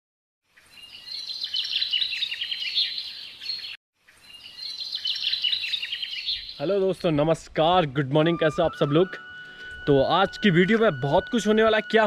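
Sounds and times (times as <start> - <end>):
songbird chirps and trills: 0.5 - 7.4.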